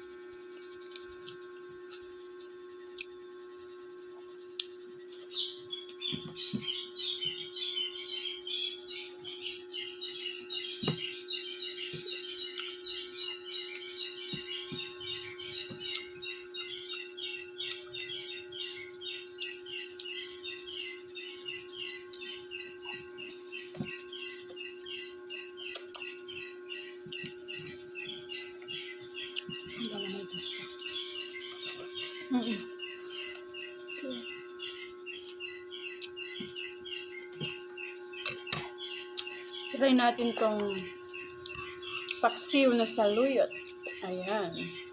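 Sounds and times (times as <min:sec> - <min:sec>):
steady low hum: 0:00.0 - 0:44.9
small birds chirping: 0:00.5 - 0:44.9.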